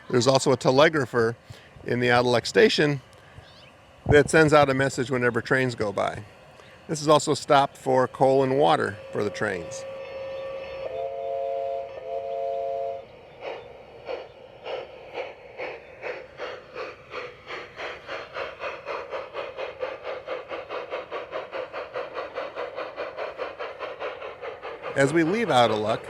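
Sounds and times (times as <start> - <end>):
model steam locomotive chuffing: 0.0 - 26.0.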